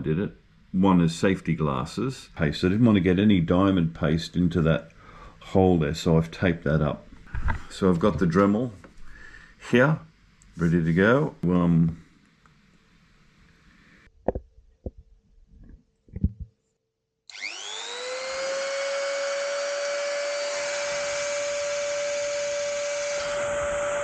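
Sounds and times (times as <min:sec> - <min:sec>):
rotary tool whining: 0:17.3 - 0:24.0.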